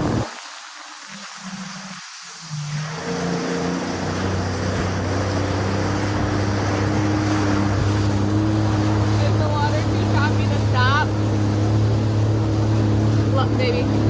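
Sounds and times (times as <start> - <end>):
jet ski engine: 0.0 - 14.0
water rushing: 0.0 - 14.0
wind: 0.0 - 14.0.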